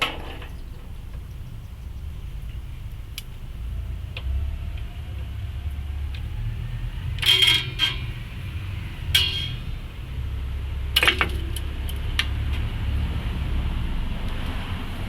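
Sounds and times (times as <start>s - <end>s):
steady low rumble: 0.0s - 15.0s
metal parts clanking and rattling: 7.1s - 9.8s, 11.0s - 11.7s.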